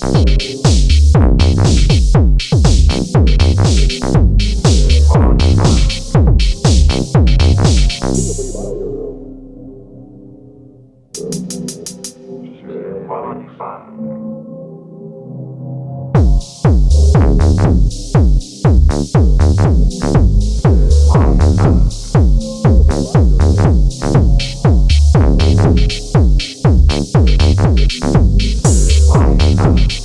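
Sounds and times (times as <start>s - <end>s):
drum machine beat: 0.0s - 8.2s, 11.2s - 12.2s, 16.2s - 30.0s
bass line: 0.0s - 11.4s, 16.2s - 30.0s.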